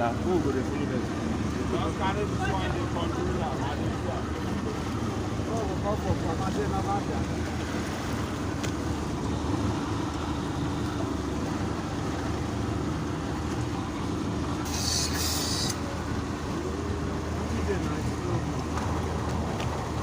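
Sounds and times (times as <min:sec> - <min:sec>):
motorboat engine drone: 0:00.0 - 0:20.0
water noise: 0:00.0 - 0:20.0
wind: 0:00.0 - 0:20.0
brief hiss: 0:14.6 - 0:15.8.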